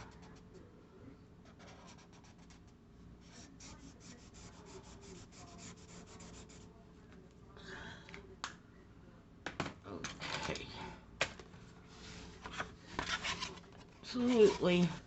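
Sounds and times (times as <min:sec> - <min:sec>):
marker rubbing on paper: 0:03.3 - 0:06.7.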